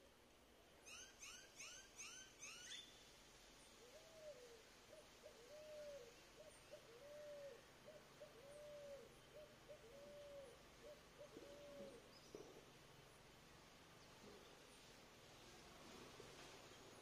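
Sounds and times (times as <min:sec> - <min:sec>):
bird hooting: 0:03.8 - 0:12.1.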